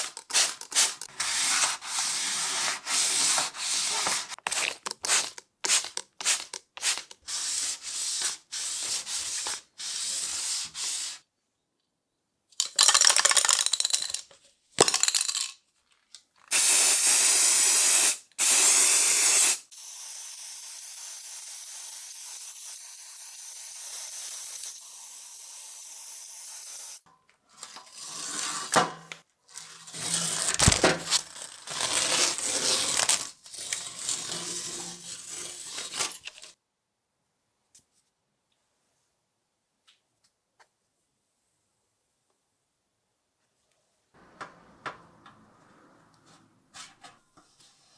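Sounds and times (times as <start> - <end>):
loud spraying hiss: 16.5 - 27.0.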